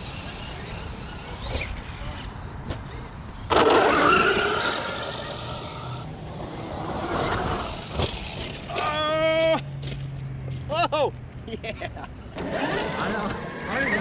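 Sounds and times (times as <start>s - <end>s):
toy truck motor whine: 0.0s - 8.5s.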